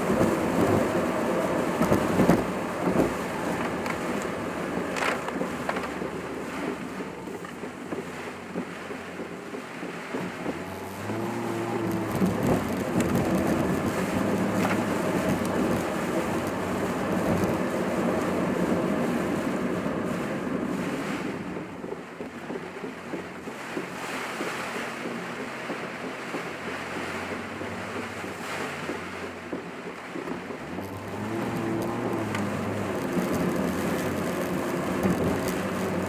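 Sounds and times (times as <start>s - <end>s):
low engine hum: 0.0s - 36.0s
road and wind noise in car: 0.0s - 36.0s.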